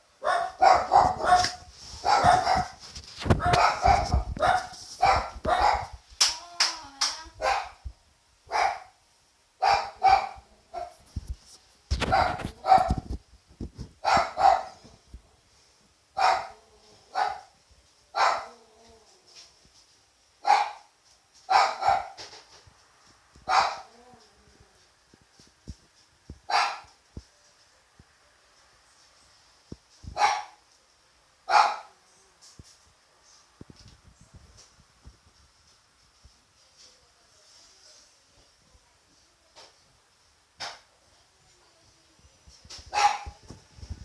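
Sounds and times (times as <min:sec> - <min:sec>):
dog barking: 0:00.2 - 0:06.0, 0:07.4 - 0:07.8, 0:08.5 - 0:09.0, 0:09.6 - 0:11.0, 0:12.0 - 0:13.0, 0:14.0 - 0:14.8, 0:16.2 - 0:17.6, 0:18.2 - 0:18.6, 0:20.4 - 0:20.9, 0:21.5 - 0:22.3, 0:23.5 - 0:24.0, 0:26.5 - 0:27.0, 0:30.2 - 0:30.6, 0:31.5 - 0:32.0, 0:42.9 - 0:43.4.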